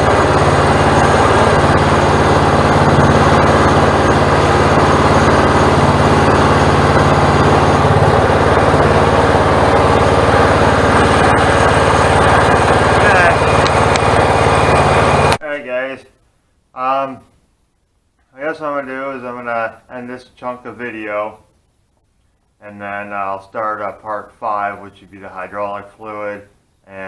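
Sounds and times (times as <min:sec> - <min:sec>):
small gasoline engine running: 0:00.0 - 0:15.4.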